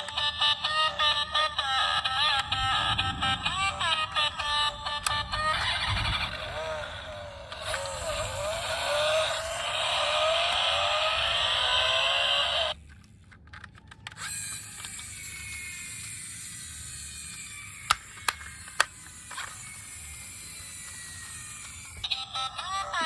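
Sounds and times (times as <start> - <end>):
motor-like whine: 1.8 - 12.8, 14.2 - 22.2
small mechanism ratcheting: 5.0 - 22.2.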